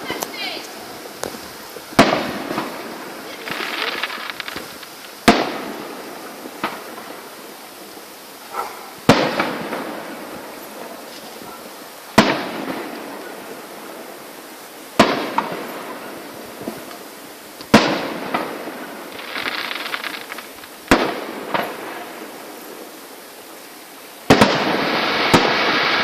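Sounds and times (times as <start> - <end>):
fireworks bangs: 0.0 - 23.1, 24.2 - 26.0
fireworks crackling: 0.0 - 26.0
small pops: 3.5 - 5.5.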